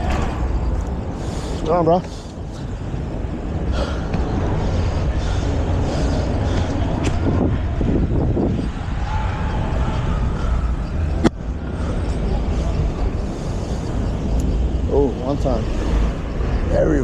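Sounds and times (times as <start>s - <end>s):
passing vehicle: 0.0s - 17.0s
street traffic: 0.0s - 17.0s
wind on microphone: 2.4s - 12.0s.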